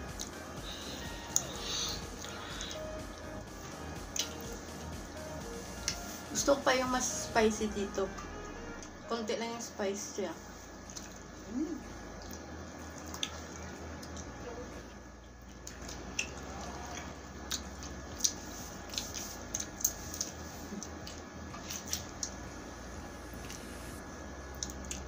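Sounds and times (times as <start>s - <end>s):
chewing and biting chicken wing: 12.0s - 14.7s, 15.3s - 22.4s.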